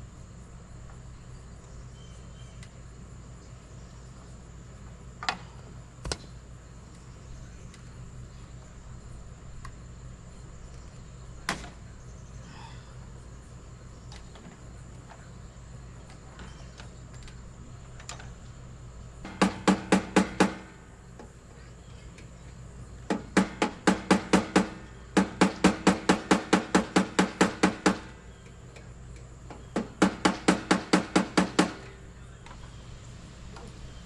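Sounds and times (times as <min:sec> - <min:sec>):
tool striking metal rapidly: 0:19.3 - 0:20.8, 0:23.1 - 0:28.1, 0:29.8 - 0:31.8.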